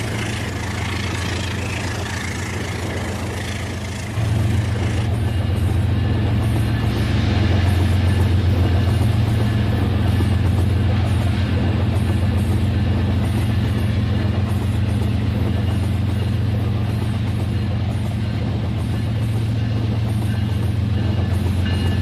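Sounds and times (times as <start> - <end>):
toy train motor drone: 0.0 - 5.2.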